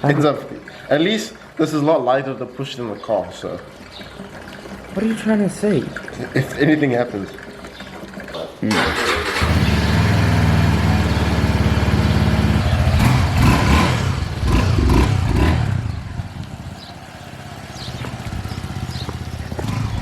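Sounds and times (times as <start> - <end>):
motorbike engine idling and revving: 7.5 - 20.0.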